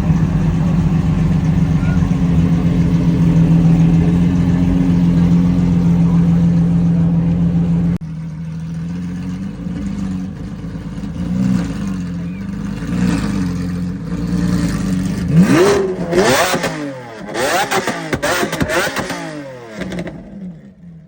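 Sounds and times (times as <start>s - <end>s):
sports car engine running: 0.0s - 21.0s
engine rev blips: 11.0s - 20.6s.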